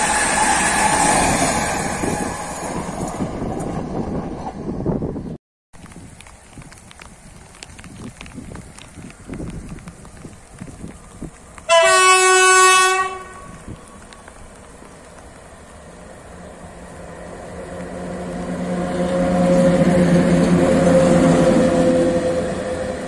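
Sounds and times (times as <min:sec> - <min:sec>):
approaching train hum: 0:00.0 - 0:23.0
locomotive horn blast: 0:11.7 - 0:13.6, 0:17.8 - 0:23.0.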